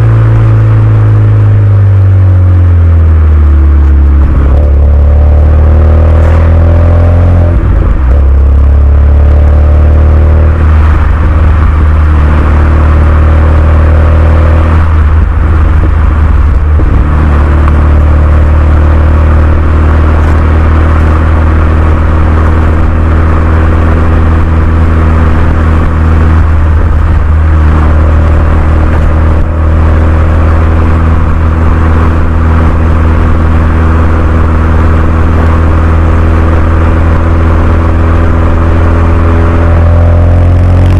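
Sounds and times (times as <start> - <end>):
car engine droning: 0.0 - 40.9.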